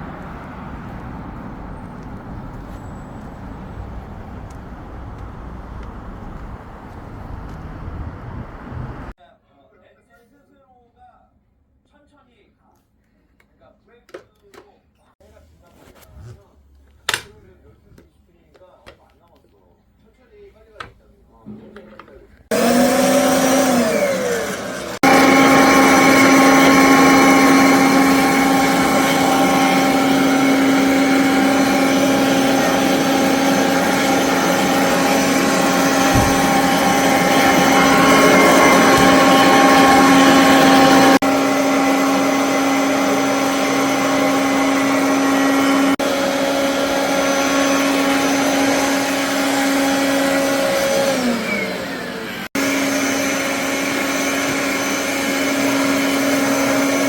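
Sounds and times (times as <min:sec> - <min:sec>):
vacuum cleaner motor whirring: 0:00.0 - 0:09.2, 0:22.5 - 0:57.0.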